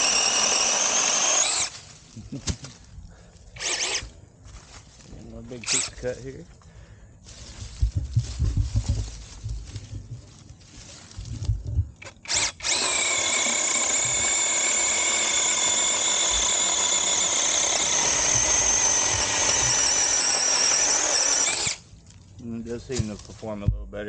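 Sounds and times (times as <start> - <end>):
mini chainsaw cutting wood: 0.0 - 1.9, 3.6 - 4.2, 5.6 - 6.0, 12.0 - 21.9.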